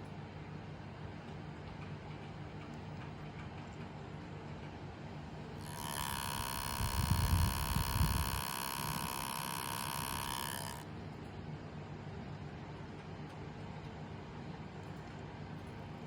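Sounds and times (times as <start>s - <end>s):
small cooling fan whining: 4.6s - 16.0s.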